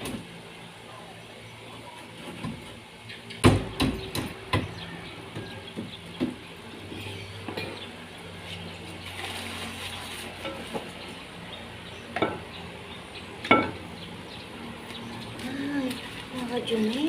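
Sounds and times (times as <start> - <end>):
hammer knocks on wood: 3.4 - 4.8.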